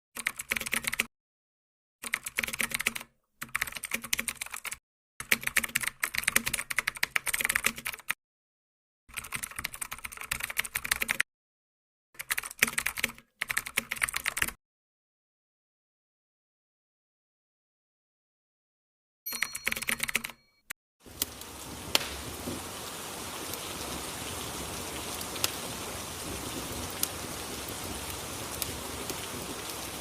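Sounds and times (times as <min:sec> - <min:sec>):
rapid keyboard typing: 0:00.2 - 0:01.1, 0:02.0 - 0:08.2, 0:09.1 - 0:11.2, 0:12.2 - 0:14.6, 0:19.3 - 0:20.7.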